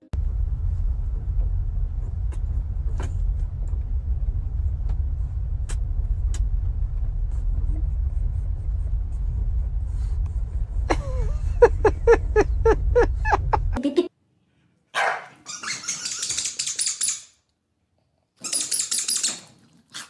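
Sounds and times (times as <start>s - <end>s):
steady low rumble: 0.0s - 13.8s.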